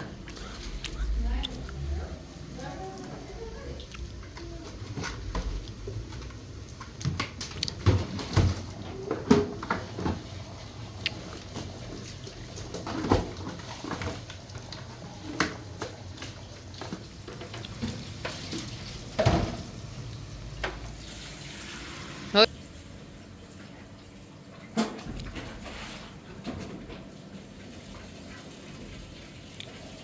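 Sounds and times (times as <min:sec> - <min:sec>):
objects clattering and clinking: 0:04.0 - 0:19.9.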